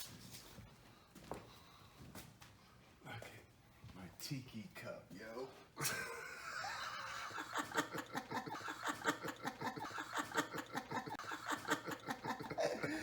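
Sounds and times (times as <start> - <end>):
man laughing breathily: 5.8 - 13.0.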